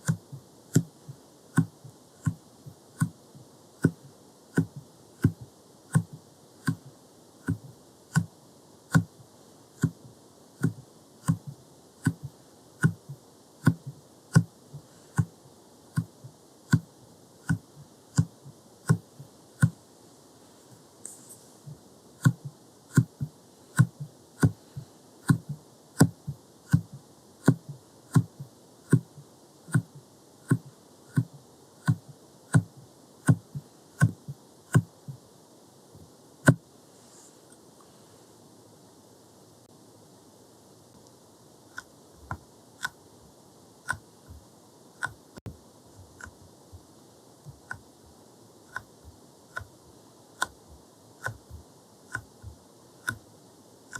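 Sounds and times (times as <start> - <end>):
jelly stamper tapping microphone: 0.0 - 9.2, 9.8 - 19.8, 21.0 - 35.2, 43.8 - 47.9, 48.7 - 49.8, 50.4 - 53.2.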